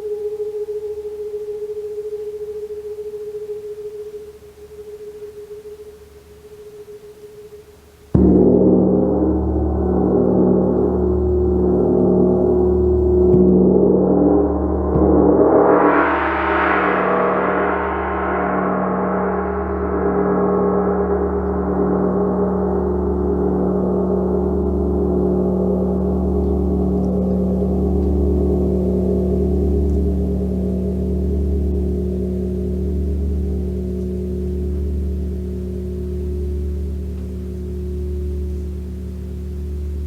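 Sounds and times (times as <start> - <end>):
large gong ringing: 8.2 - 30.2
deep pulsing drone: 8.2 - 40.0.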